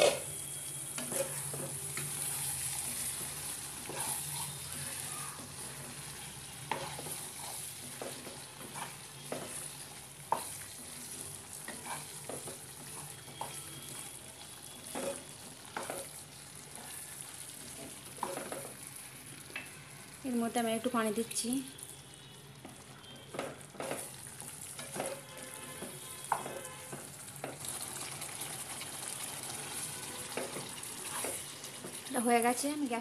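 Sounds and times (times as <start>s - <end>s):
curry sizzling in a frying pan: 0.0s - 33.0s
spatula scraping and knocking pan: 1.0s - 13.9s, 14.8s - 16.2s, 17.8s - 18.8s, 23.3s - 27.6s, 30.3s - 32.0s.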